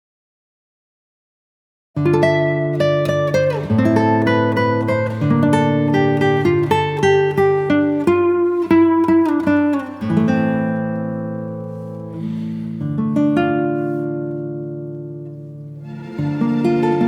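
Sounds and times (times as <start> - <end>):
acoustic guitar picked melody: 2.0 - 17.0.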